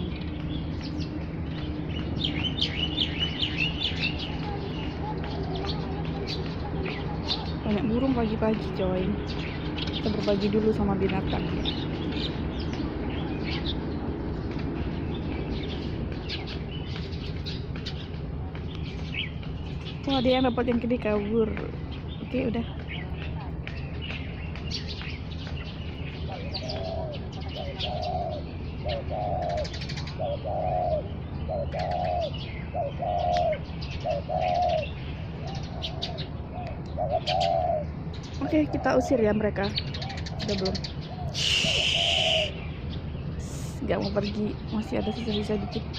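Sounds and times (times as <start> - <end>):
small birds chirping: 0.0 - 45.9
steady low hum: 0.0 - 45.9
dove cooing: 1.7 - 12.5, 26.1 - 42.6.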